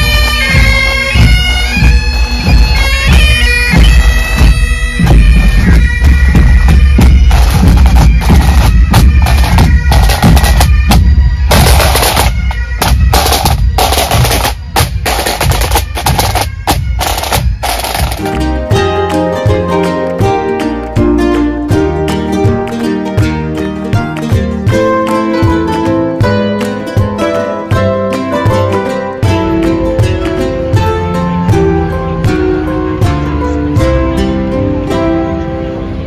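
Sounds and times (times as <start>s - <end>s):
bagpipes playing: 0.0s - 23.9s
bass and tenor drums: 0.0s - 35.2s
snare drum rolls: 0.6s - 18.4s.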